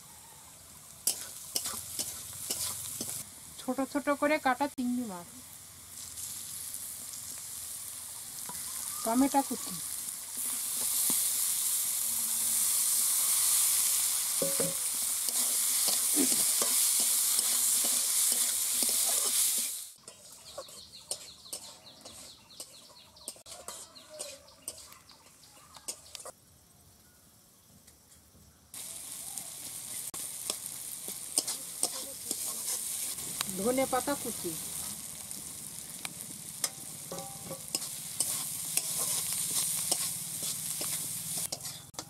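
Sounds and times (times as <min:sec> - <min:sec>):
food sizzling in a pan: 0:00.0 - 0:26.4, 0:28.7 - 0:42.0
spatula clicking and scraping pan: 0:01.0 - 0:03.2, 0:14.4 - 0:25.0, 0:30.4 - 0:33.2, 0:36.6 - 0:42.0.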